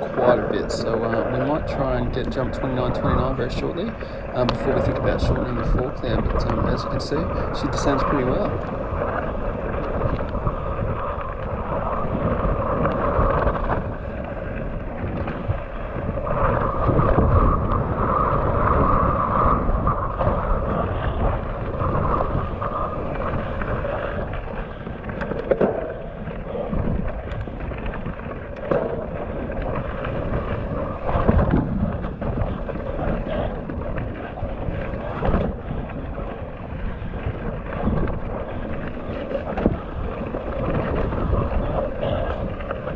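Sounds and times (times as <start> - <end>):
bike tyre noise: 0.0 - 42.9
wind buffeting microphone: 0.0 - 42.9.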